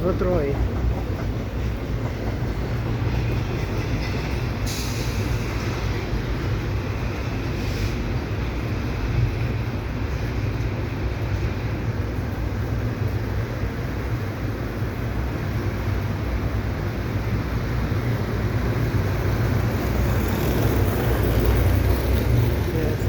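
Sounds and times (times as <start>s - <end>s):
freight train rumbling on rails: 0.0s - 23.0s
heavy rain hiss: 7.0s - 8.6s.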